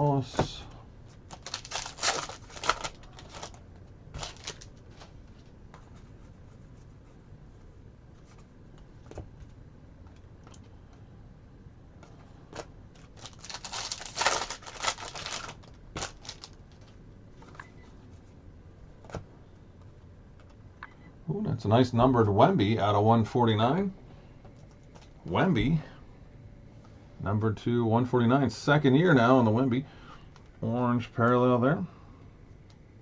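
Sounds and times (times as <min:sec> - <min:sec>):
wrapper rustling: 0:01.2 - 0:05.1, 0:13.0 - 0:17.0.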